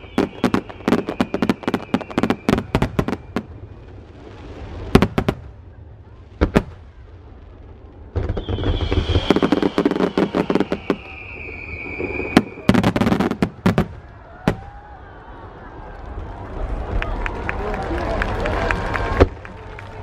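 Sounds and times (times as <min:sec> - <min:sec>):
high whistle falling in pitch: 0:00.0 - 0:03.2, 0:08.3 - 0:12.7
fireworks sharp bangs: 0:00.0 - 0:07.0, 0:08.0 - 0:14.7
fireworks crackling: 0:00.0 - 0:14.8.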